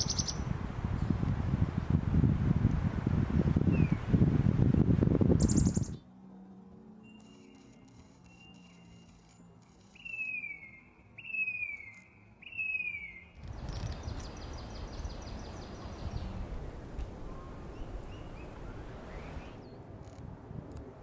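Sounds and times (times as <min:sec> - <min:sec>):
small bird whistled call: 0:00.0 - 0:00.4, 0:05.4 - 0:06.0, 0:10.0 - 0:13.4
wind rumble on microphone: 0:00.0 - 0:06.1, 0:13.4 - 0:21.0.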